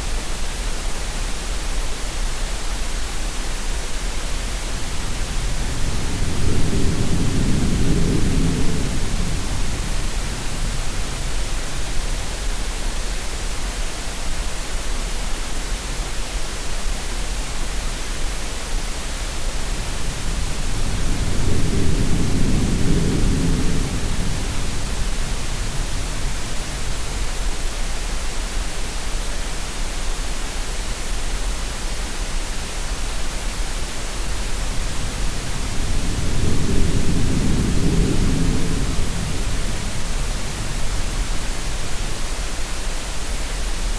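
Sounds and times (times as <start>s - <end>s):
steady noise hiss: 0.0s - 43.9s
low sea swell: 34.3s - 42.0s.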